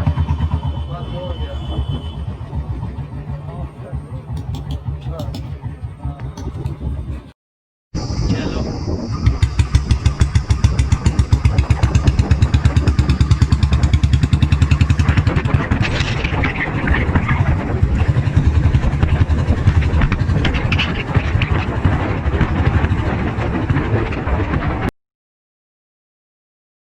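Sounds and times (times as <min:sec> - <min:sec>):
motorcycle exhaust thumping: 0:04.2 - 0:07.2, 0:09.2 - 0:24.2.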